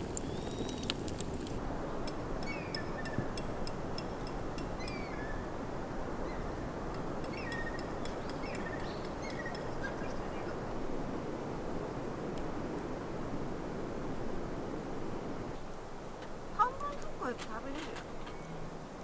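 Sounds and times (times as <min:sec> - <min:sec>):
small birds chirping: 0:00.0 - 0:01.0, 0:04.7 - 0:05.5, 0:06.2 - 0:10.8.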